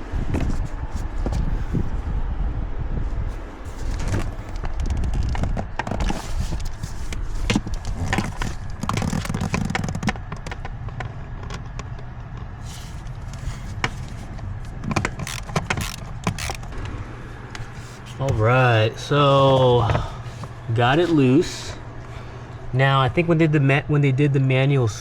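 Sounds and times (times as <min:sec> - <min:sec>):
low uneven rumble: 0:00.0 - 0:25.0
clicks and scrapes of parts: 0:03.6 - 0:18.4.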